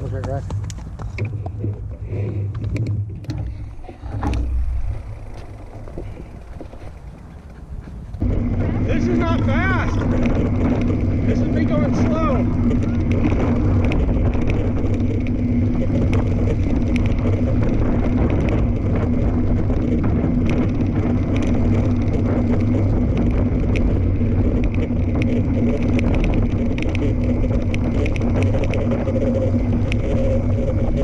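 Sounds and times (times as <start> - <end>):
bike tyres humming on trail: 0.0 - 31.0
small ticks: 10.0 - 31.0.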